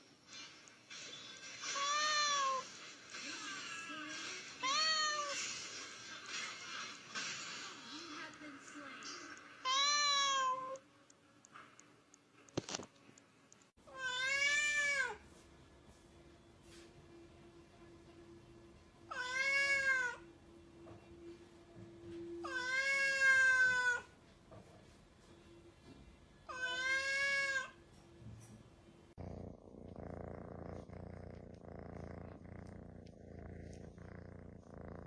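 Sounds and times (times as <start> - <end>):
cat meowing: 1.7 - 2.7, 3.4 - 5.4, 9.6 - 10.8, 13.9 - 15.2, 19.1 - 20.2, 22.4 - 24.1, 26.5 - 27.8
cat purring: 29.1 - 35.0.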